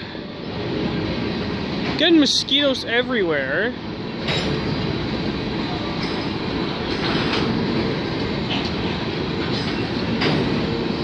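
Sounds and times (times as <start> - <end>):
steel train wheels rumbling and clattering: 0.0 - 11.0.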